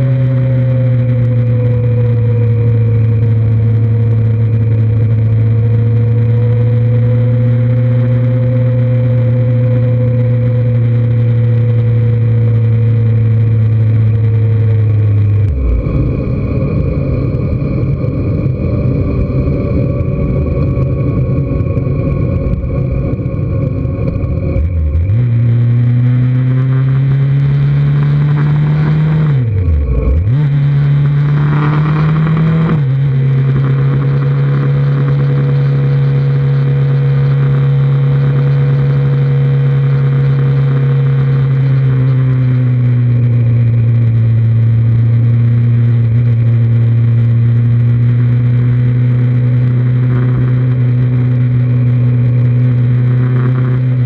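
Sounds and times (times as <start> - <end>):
motorcycle engine running: 0.0 - 54.0
wind rush: 15.0 - 26.0.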